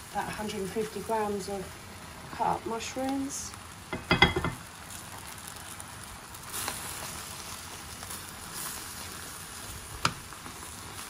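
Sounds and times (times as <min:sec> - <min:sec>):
food sizzling in a baking dish: 0:00.0 - 0:11.0.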